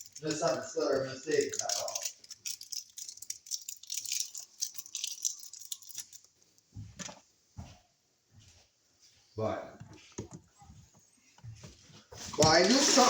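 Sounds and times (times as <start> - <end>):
small hard objects rattling: 0.0 - 6.3, 12.2 - 13.0.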